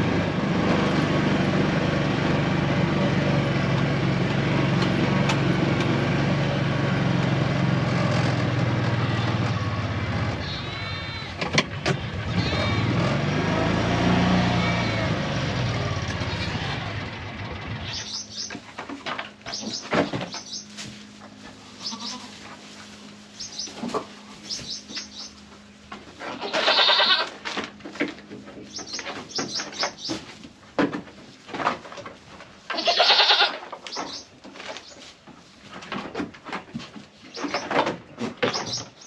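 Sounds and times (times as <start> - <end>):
engine-like noise: 0.0 - 32.0
goats bleating: 8.9 - 9.7, 10.3 - 13.0, 14.3 - 15.3, 16.1 - 16.9, 21.6 - 22.5, 26.2 - 27.4, 32.7 - 33.6
small birds chirping: 17.8 - 18.8, 19.4 - 20.8, 21.7 - 22.3, 23.3 - 25.9, 28.6 - 30.3, 33.8 - 35.1, 37.2 - 39.0.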